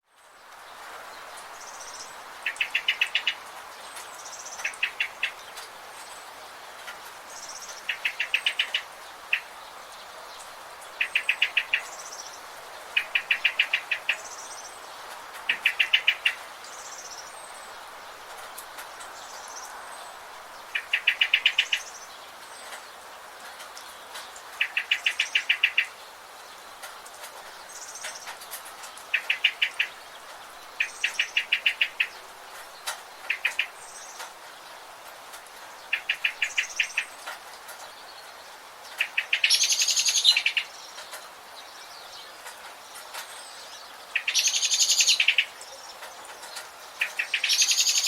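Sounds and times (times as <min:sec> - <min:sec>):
forest ambience hiss: 0:00.1 - 0:48.0
bird singing loud notes: 0:39.0 - 0:46.1.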